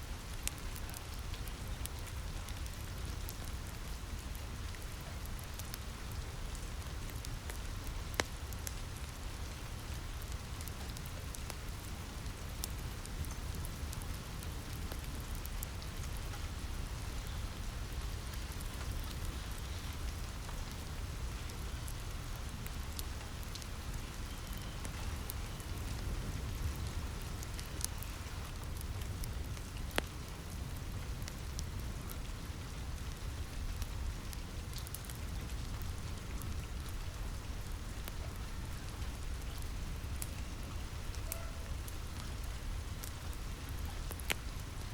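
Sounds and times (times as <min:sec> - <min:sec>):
rain on a roof: 0:00.0 - 0:44.9
wood fire crackling and popping: 0:00.1 - 0:44.9.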